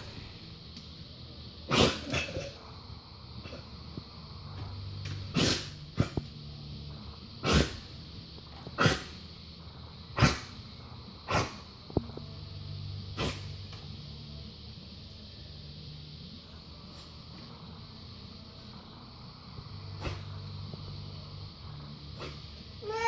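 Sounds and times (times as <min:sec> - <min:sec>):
dog coughing and hacking: 0:01.7 - 0:02.6, 0:05.3 - 0:06.2, 0:07.4 - 0:07.9, 0:08.8 - 0:09.2, 0:10.2 - 0:10.6, 0:11.3 - 0:11.7.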